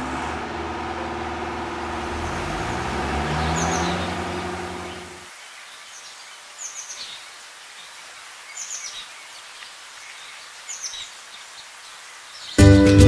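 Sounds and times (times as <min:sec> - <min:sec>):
faint outdoor hiss: 0:00.0 - 0:12.8
small bird chirping: 0:02.4 - 0:07.9.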